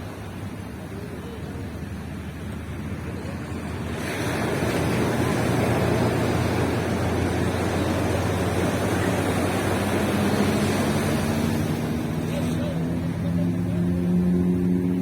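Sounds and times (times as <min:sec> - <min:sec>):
low engine hum: 0:00.0 - 0:15.0
surf breaking on beach: 0:00.0 - 0:15.0.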